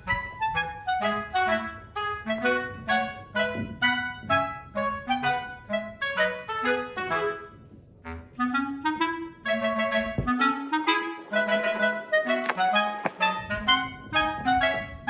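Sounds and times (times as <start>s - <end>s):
bouncy melody of pitched notes: 8.6s - 15.0s.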